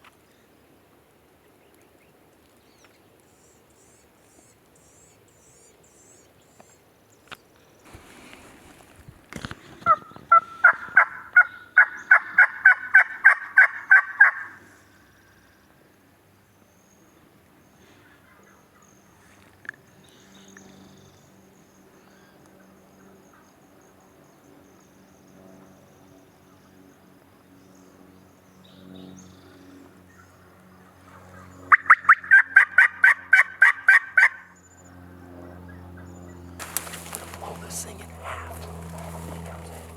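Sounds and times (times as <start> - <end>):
turkey yelping: 9.9 - 14.5, 38.0 - 39.9.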